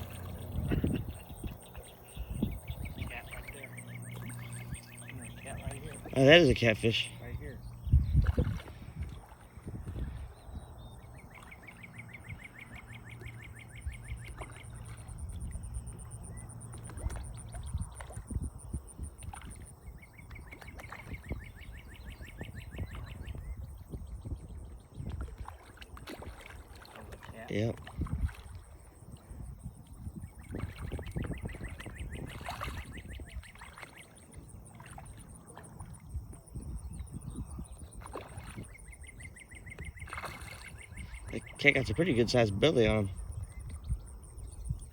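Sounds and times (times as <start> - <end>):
fish splashing and slurping: 0.0 - 44.9
wind rumble on microphone: 0.0 - 44.9.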